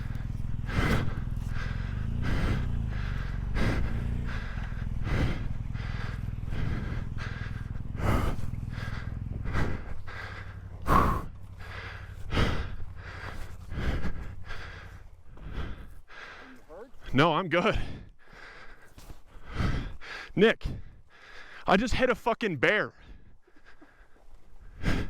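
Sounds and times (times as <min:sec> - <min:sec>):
motorcycle engine idling: 0:00.0 - 0:17.1, 0:22.9 - 0:25.0
person breathing hard: 0:00.0 - 0:17.1, 0:17.7 - 0:21.7, 0:22.9 - 0:25.0.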